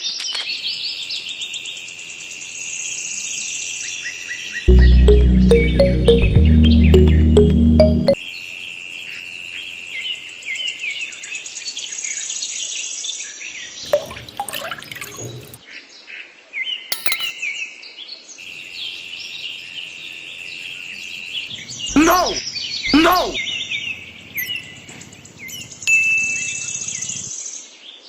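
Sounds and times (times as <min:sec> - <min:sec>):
small birds chirping: 0:19.3 - 0:27.3.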